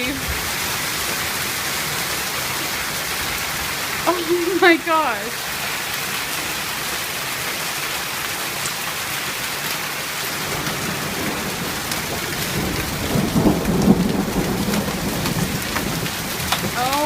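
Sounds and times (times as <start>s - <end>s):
thunder rumble: 0.0s - 4.0s, 10.3s - 17.0s
hailstones ticking: 0.0s - 6.3s, 9.6s - 17.0s
hail and rain pelting down: 0.0s - 17.0s.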